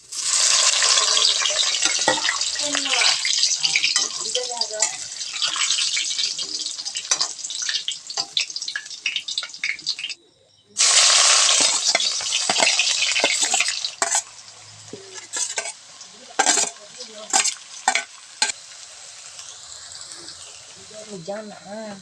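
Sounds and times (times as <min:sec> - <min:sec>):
curry sizzling in a pan: 0:00.0 - 0:10.2, 0:10.8 - 0:22.0
spoon stirring and scraping: 0:00.5 - 0:10.2, 0:11.3 - 0:14.3, 0:14.9 - 0:18.6.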